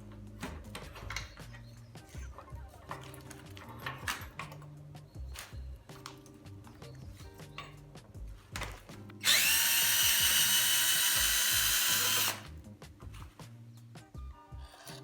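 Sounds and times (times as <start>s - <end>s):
background music: 0.0s - 15.0s
power drill whining: 9.2s - 12.5s.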